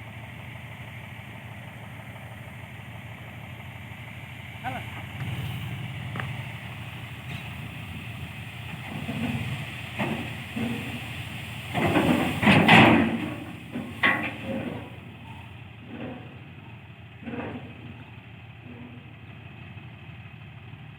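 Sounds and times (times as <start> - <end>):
diesel tractor engine: 0.0 - 20.9
rushing clatter: 5.0 - 16.2.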